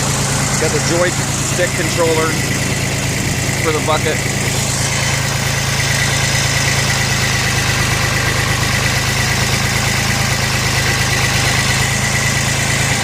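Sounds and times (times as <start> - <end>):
high whine: 0.0 - 9.1
diesel tractor engine running: 0.0 - 13.0.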